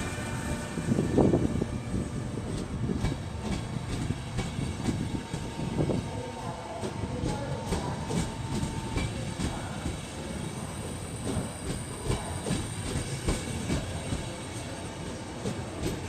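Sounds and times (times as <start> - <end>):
train rumbling past: 0.0 - 16.0
train wheels clicking over rail joints: 2.0 - 6.0, 6.8 - 14.7.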